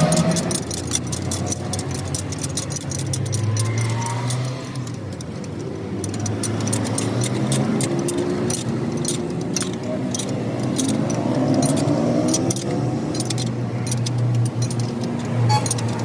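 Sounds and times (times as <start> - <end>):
light metallic clicks and clinks: 0.0 - 16.0.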